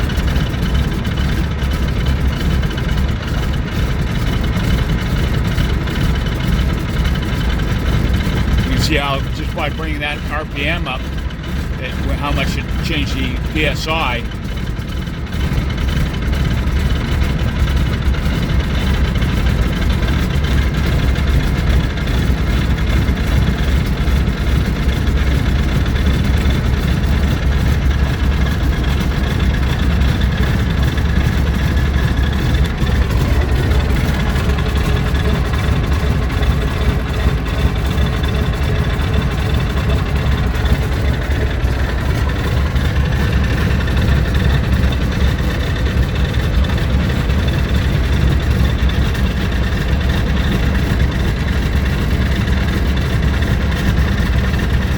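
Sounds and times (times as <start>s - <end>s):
radial aircraft engine running: 0.0s - 54.9s.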